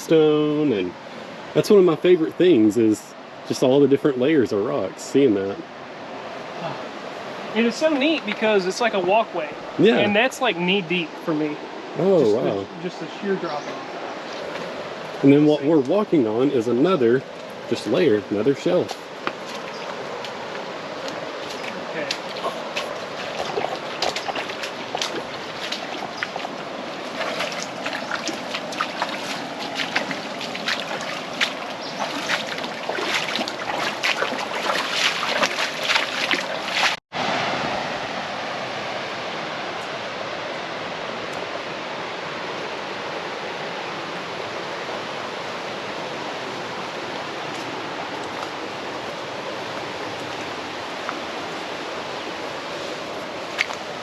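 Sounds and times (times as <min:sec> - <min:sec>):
creek water running over rock: 0:00.0 - 0:37.9, 0:39.3 - 0:54.0
short splashes and knocks: 0:21.4 - 0:37.0.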